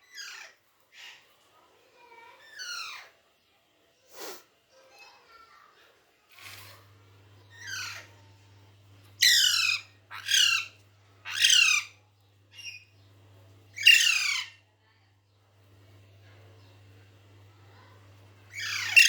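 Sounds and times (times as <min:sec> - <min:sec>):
parrot squawking: 0:07.5 - 0:08.2, 0:09.2 - 0:12.0, 0:13.8 - 0:14.6, 0:18.5 - 0:19.0.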